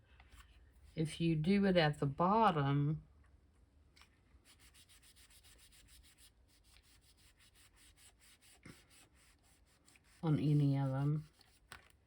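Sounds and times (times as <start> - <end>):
paper rustling: 10.0 - 12.0.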